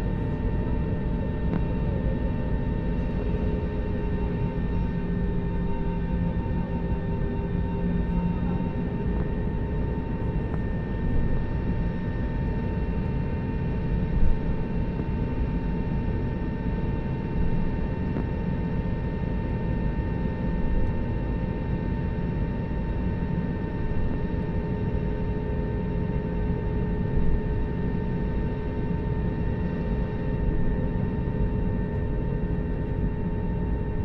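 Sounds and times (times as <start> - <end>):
airliner cabin hum: 0.0 - 21.1
steady whine: 0.0 - 34.0.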